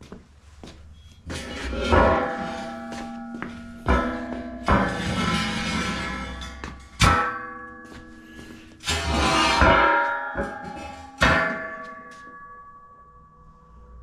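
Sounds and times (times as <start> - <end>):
rough metal scraping: 1.0 - 12.1
steel pieces clanging and ringing: 1.2 - 12.6.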